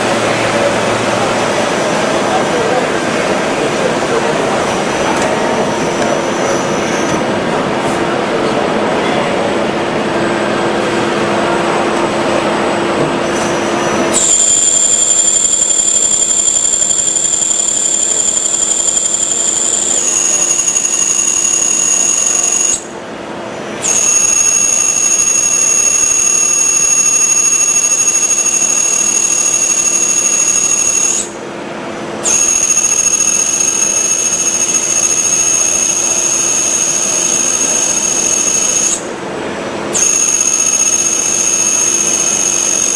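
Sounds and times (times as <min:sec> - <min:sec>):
milling machine hum: 0:00.0 - 0:42.9
high-pitched cutter whine: 0:13.2 - 0:23.0, 0:23.6 - 0:31.5, 0:32.2 - 0:39.2, 0:39.9 - 0:42.9.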